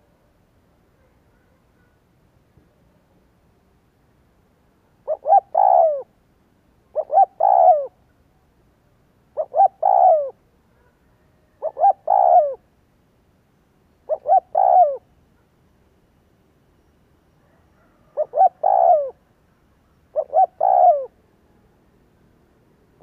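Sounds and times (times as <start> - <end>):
dove cooing: 5.0 - 6.1, 6.9 - 8.0, 9.4 - 10.4, 11.1 - 12.7, 14.0 - 15.1, 17.4 - 19.3, 20.1 - 21.2.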